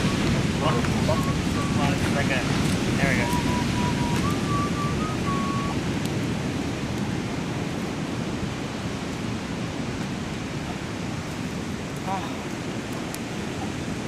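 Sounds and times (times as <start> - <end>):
high steady tone: 0.0 - 5.8
ocean surf breaking: 0.0 - 14.0.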